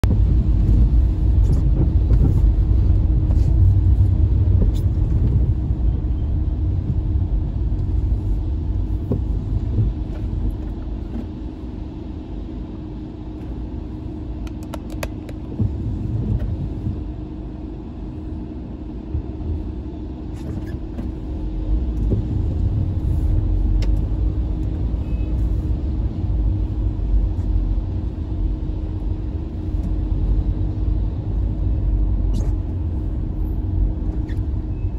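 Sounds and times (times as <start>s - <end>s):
car road and engine rumble: 0.0s - 34.9s
constant hum: 0.0s - 34.9s.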